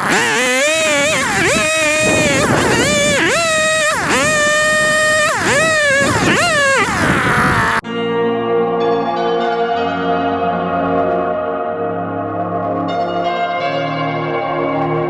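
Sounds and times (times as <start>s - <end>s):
chainsaw revving: 0.0s - 7.8s.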